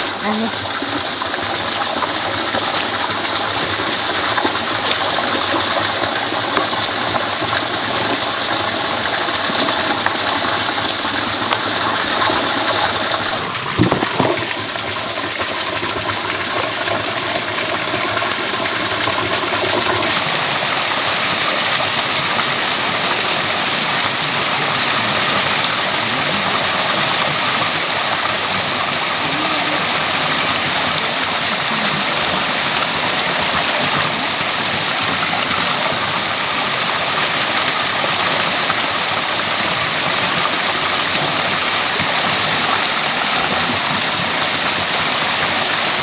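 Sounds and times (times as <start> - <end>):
water running: 0.0 - 35.7.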